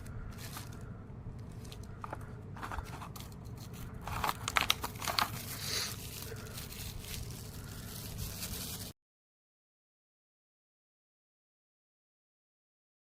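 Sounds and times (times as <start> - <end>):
crinkly rustling: 0.0 - 9.0.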